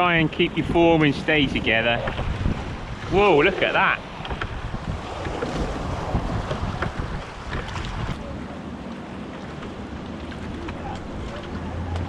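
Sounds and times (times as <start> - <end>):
wind buffeting microphone: 0.0 - 8.6
sea washing: 0.0 - 12.0.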